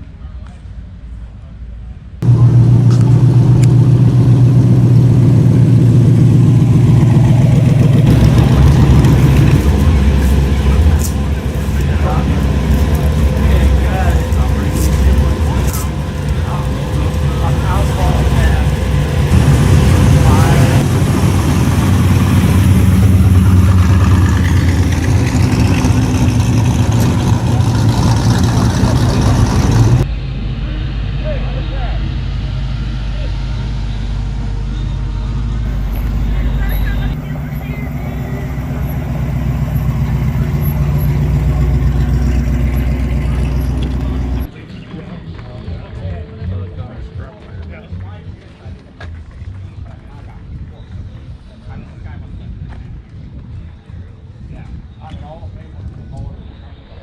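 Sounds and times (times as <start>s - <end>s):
car engine running at low revs: 2.2s - 44.5s.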